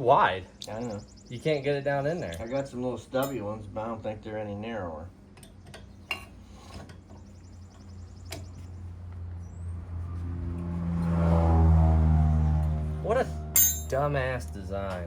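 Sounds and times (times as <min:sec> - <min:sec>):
metal hand tools clinking: 0:03.2 - 0:03.4, 0:13.6 - 0:14.2
low engine drone: 0:07.4 - 0:15.0.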